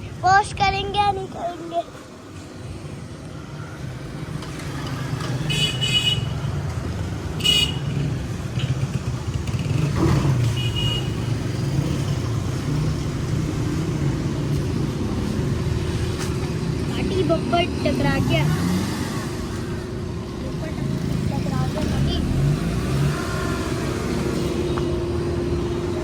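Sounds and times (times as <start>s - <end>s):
street traffic: 0.0s - 26.0s
car horn toots: 7.4s - 8.0s, 10.4s - 11.2s
car engine running: 12.1s - 26.0s.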